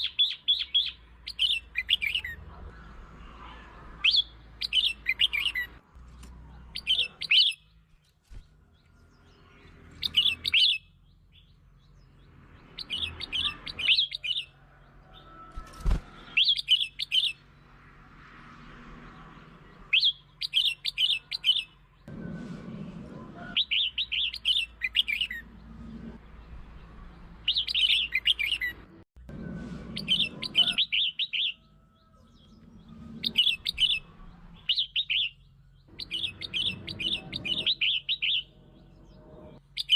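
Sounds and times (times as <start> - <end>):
bird singing short bright phrases: 0.0 - 14.5.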